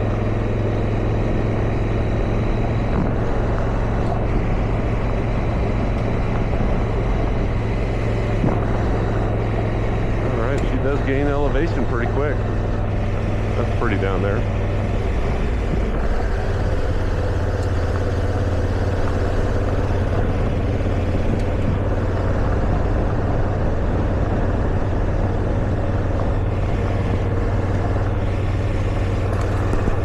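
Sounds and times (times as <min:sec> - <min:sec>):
motorcycle engine droning: 0:00.0 - 0:30.0
road noise on gravel: 0:00.0 - 0:30.0.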